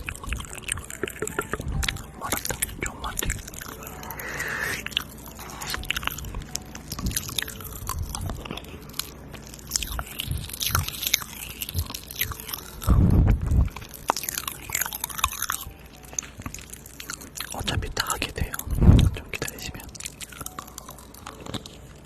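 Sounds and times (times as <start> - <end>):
wet mouth clicks and smacks: 0.0 - 21.8.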